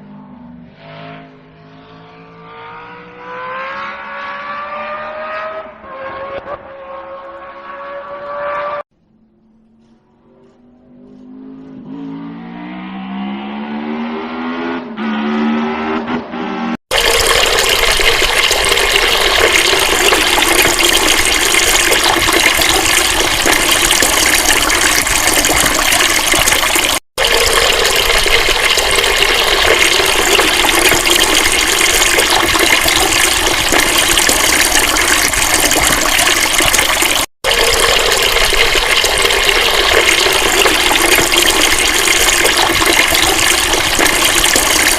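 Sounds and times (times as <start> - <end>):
rush of flowing water: 16.9 - 44.9.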